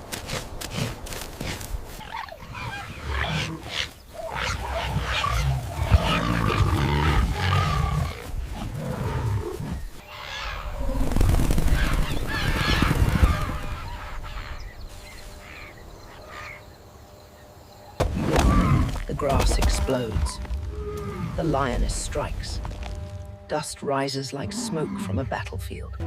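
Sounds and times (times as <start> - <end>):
lioness growling and snarling: 0.7 - 10.0.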